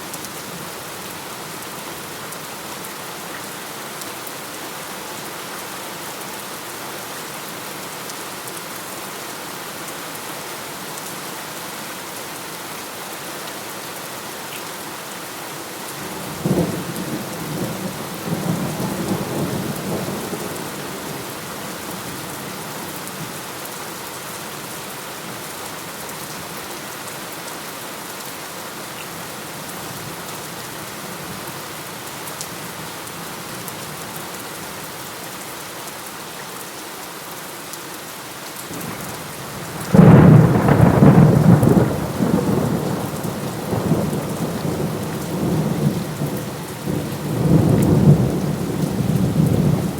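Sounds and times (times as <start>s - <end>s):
heavy rain falling: 0.0s - 49.9s
rumbling thunder: 39.7s - 46.3s.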